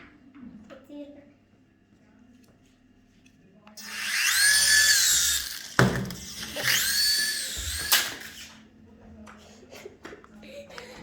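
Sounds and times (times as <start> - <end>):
toy helicopter motor whining: 3.8 - 8.6.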